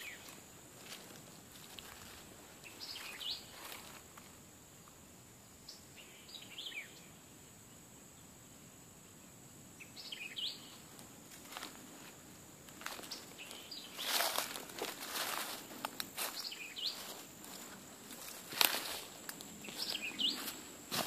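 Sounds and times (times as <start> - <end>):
wild bird calling: 19.6 - 20.6.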